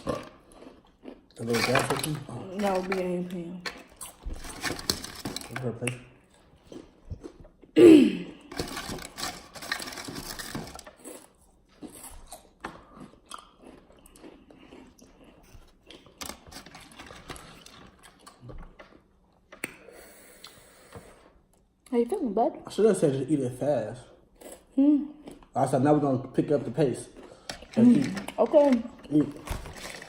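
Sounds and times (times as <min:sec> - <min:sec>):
corn chips crunching: 0:00.0 - 0:05.9, 0:08.5 - 0:18.9, 0:27.4 - 0:30.0.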